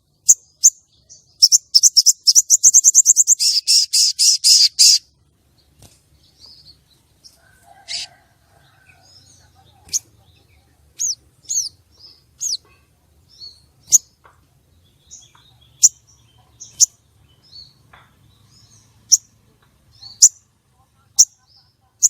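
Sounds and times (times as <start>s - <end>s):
bird sharp high chirps: 0.2s - 5.1s, 8.9s - 14.2s, 14.9s - 20.5s.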